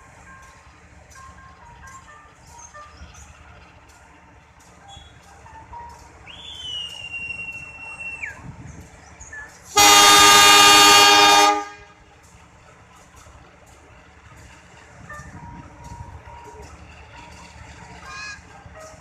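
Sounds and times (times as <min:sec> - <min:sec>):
locomotive horn blast: 0:09.7 - 0:12.0.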